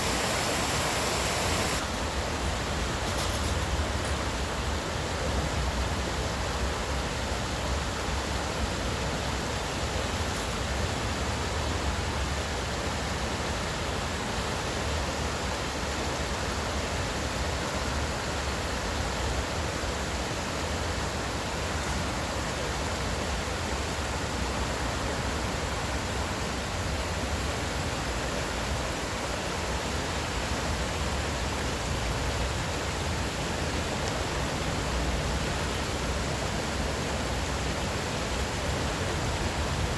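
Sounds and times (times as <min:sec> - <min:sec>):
stream water rushing: 0:00.0 - 0:02.8, 0:08.2 - 0:39.9.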